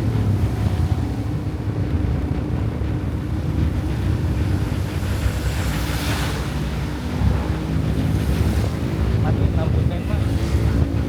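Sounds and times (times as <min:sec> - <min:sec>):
wind rush on microphone: 0:00.0 - 0:11.0.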